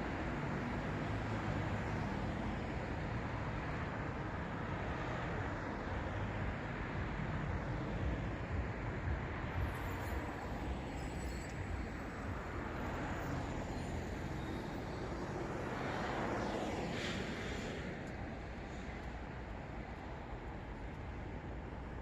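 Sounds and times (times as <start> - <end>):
cars passing by: 0.0 - 22.0.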